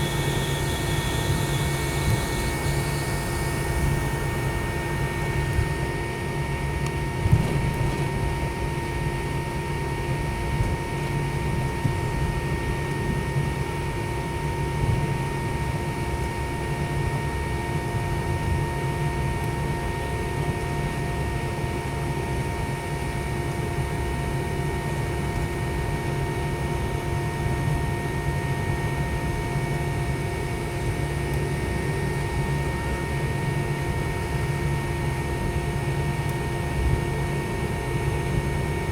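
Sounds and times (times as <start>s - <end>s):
fixed whining tones: 0.0s - 6.0s
cabin ventilation hum: 0.0s - 9.3s.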